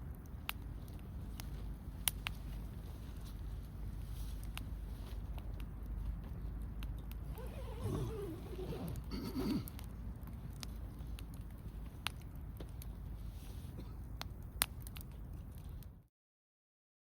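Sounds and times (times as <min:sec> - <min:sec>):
wood fire crackling and popping: 0:09.7 - 0:13.2, 0:14.1 - 0:16.0.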